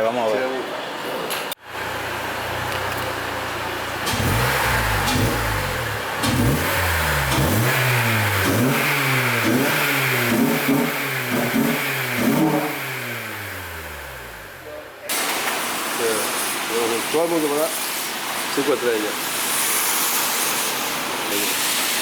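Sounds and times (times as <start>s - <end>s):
car engine idling and revving: 1.7s - 14.7s.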